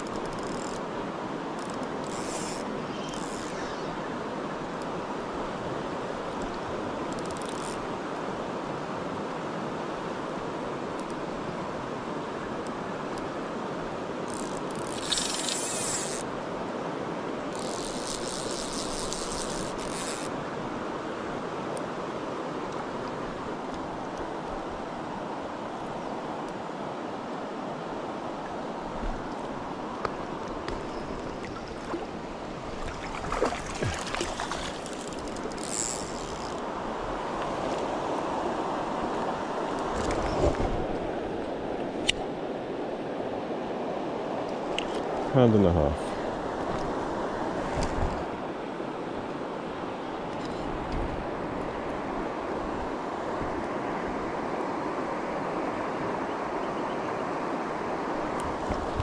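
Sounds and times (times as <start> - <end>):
river water rushing: 0.0 - 59.0
fishing reel drag buzzing: 1.6 - 3.8, 14.3 - 16.2, 17.5 - 20.3, 34.8 - 36.6
fish splash: 32.9 - 35.1.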